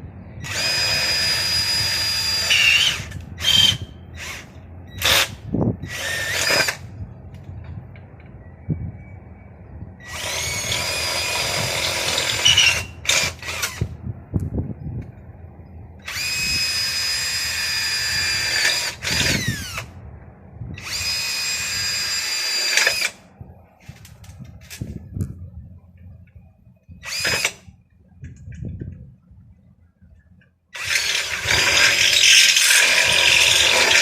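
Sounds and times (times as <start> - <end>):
power drill whining: 0.4 - 6.8, 10.0 - 13.9, 16.0 - 19.9, 20.8 - 23.2, 27.0 - 27.6, 30.8 - 34.0.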